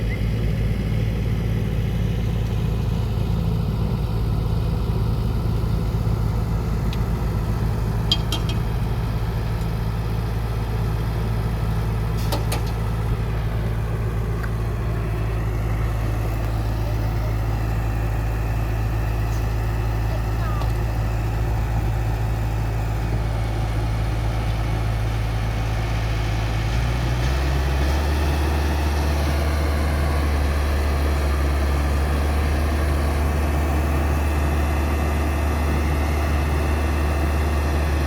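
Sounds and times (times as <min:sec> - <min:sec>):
diesel engines running: 0:00.0 - 0:38.0.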